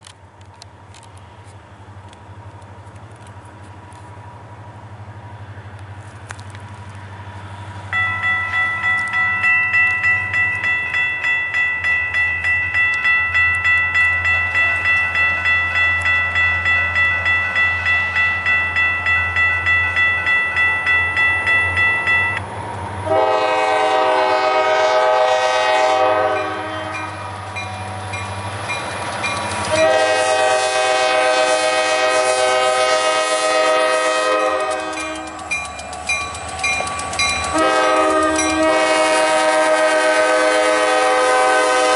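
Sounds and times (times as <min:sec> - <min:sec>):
low locomotive rumble: 0:00.0 - 0:41.9
crossing bells ringing rapidly: 0:07.9 - 0:22.4, 0:23.1 - 0:41.0
locomotive horn blasts: 0:23.0 - 0:27.3, 0:29.7 - 0:35.5, 0:37.5 - 0:41.9.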